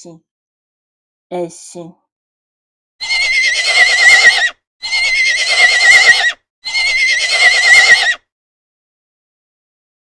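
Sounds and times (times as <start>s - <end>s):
horse whinnying: 3.0s - 8.3s.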